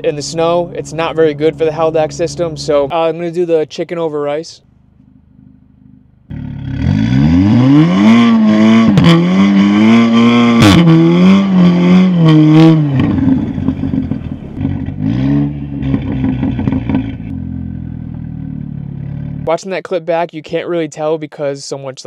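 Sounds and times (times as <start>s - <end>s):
car engine revving at full throttle: 5.4s - 19.5s.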